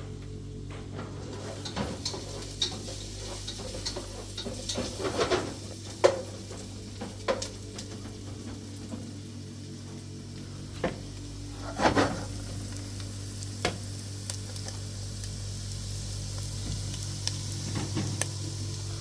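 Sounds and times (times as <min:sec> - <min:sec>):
food sizzling in a pan: 0:01.4 - 0:08.0, 0:11.4 - 0:19.0.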